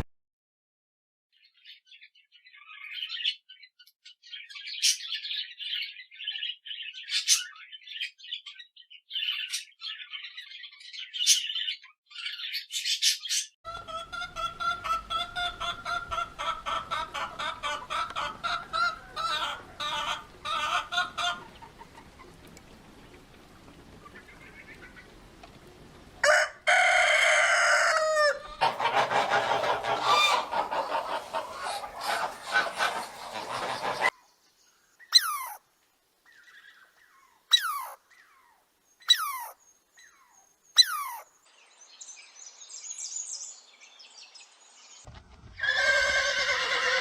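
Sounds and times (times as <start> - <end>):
small birds chirping: 1.4 - 26.2, 28.4 - 45.1
noisy farmyard background: 1.4 - 47.0
chickens clucking: 13.7 - 34.1.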